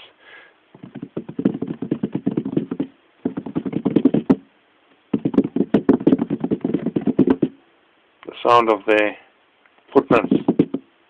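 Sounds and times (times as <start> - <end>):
rapid tapping on rock: 0.8 - 4.4, 5.1 - 7.6, 10.0 - 10.9.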